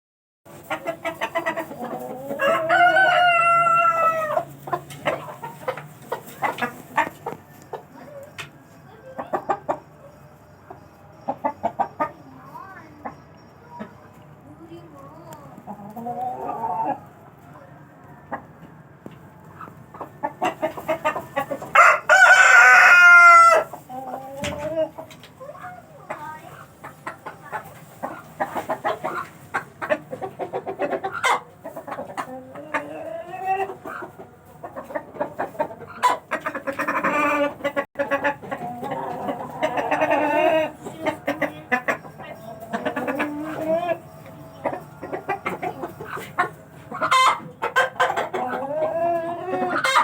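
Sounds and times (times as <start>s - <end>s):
chickens clucking: 0.5s - 50.0s
rooster crowing: 2.4s - 4.4s, 21.8s - 23.7s.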